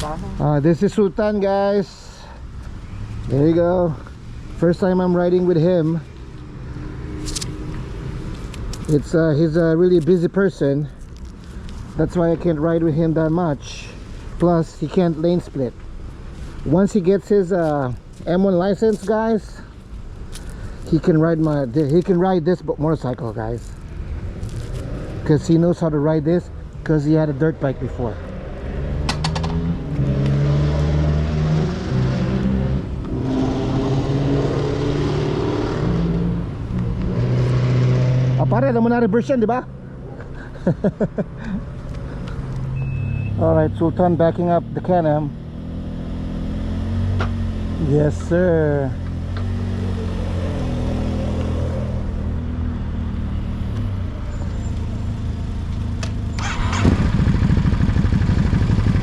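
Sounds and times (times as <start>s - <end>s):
motorcycle engines idling and revving: 0.0s - 59.0s
motorcycle engine at low revs: 29.0s - 30.1s, 43.4s - 59.0s.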